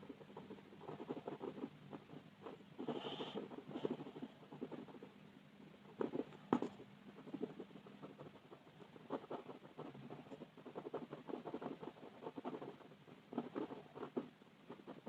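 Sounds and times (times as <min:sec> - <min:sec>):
colouring strokes scratching paper: 0:00.0 - 0:05.1.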